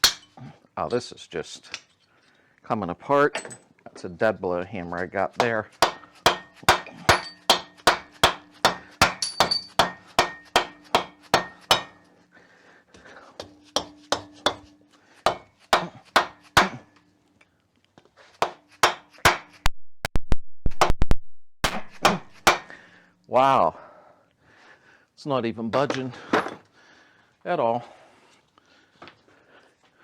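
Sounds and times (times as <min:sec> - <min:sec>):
hammer striking engine metal: 0:00.0 - 0:00.3, 0:05.8 - 0:12.1, 0:13.4 - 0:14.7, 0:15.3 - 0:16.8, 0:21.6 - 0:22.7.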